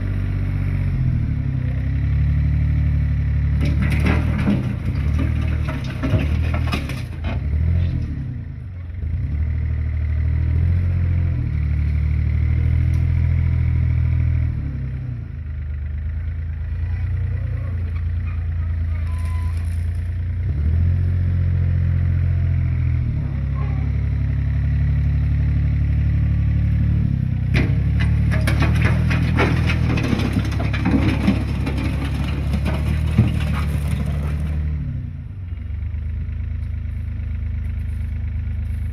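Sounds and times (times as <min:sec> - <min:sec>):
clattering knocks: 0:03.6 - 0:07.5, 0:27.5 - 0:34.6.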